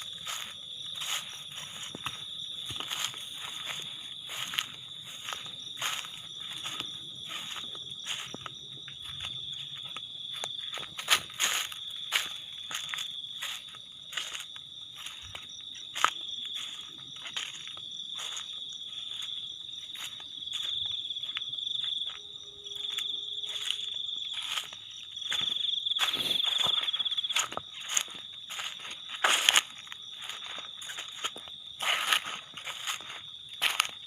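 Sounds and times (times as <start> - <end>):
crickets chirring: 0.0 - 34.0
sharp crunches and knocks: 24.4 - 33.0.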